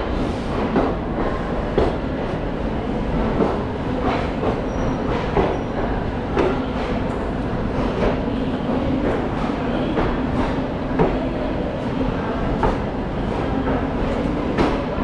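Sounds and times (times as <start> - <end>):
train running rumble: 0.0 - 15.0
train wheels knocking on rail joints: 3.3 - 7.0.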